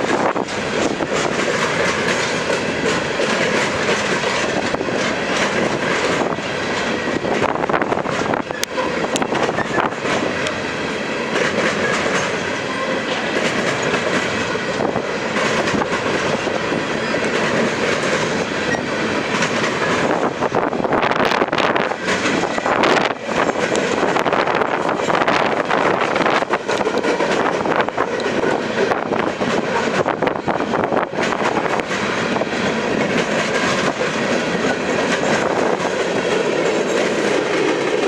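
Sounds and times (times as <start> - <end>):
freight train rolling past: 0.0 - 38.0
wheels clacking over rail joints: 0.0 - 38.0.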